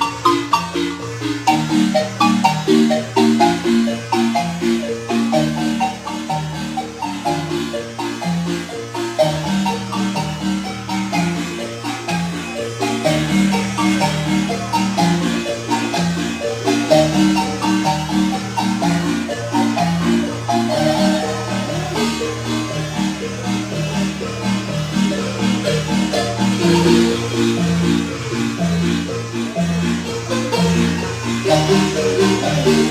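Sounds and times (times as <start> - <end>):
marimba ensemble playing: 0.0 - 32.9.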